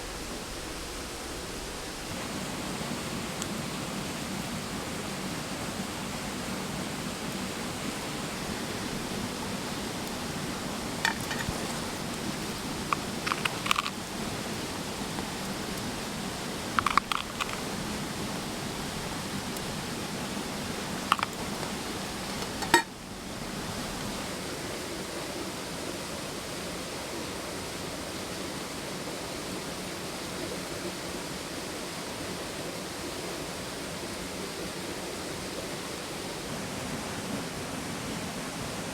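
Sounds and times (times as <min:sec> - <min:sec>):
stream water rushing: 0:00.0 - 0:38.9
campfire popping and crackling: 0:07.9 - 0:24.4.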